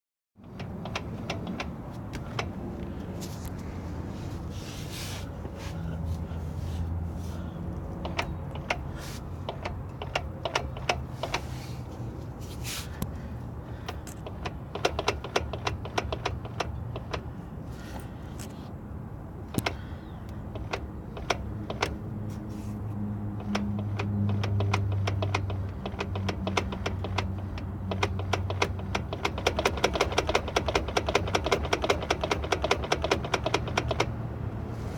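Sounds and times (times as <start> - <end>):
cv axle clicking: 0.4 - 2.8, 7.7 - 12.1, 12.9 - 17.4, 19.4 - 22.1, 23.3 - 34.3.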